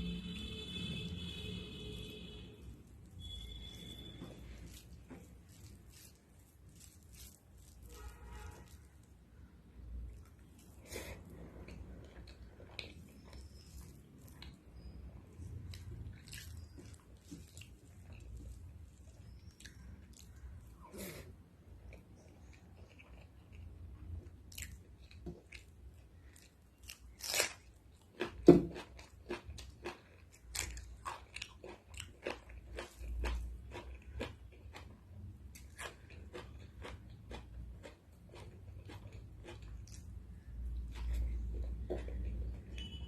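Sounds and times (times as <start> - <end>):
person chewing crunchy food: 0.2 - 43.0.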